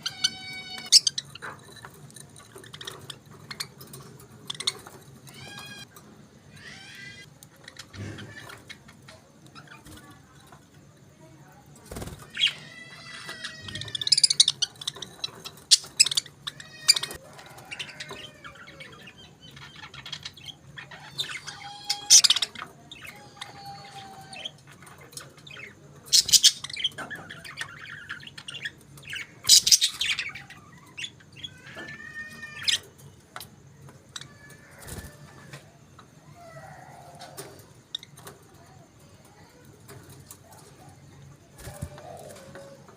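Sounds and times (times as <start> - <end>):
budgerigars chirping and warbling: 0.0 - 5.9, 11.9 - 35.5.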